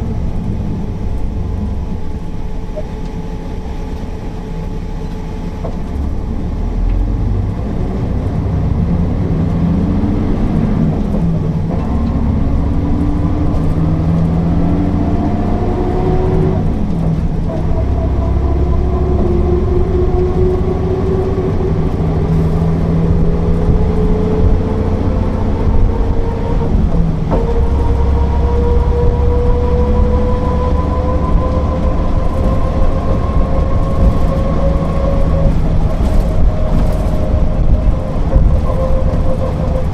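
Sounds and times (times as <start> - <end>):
bus engine rumble with whine: 0.0 - 39.9.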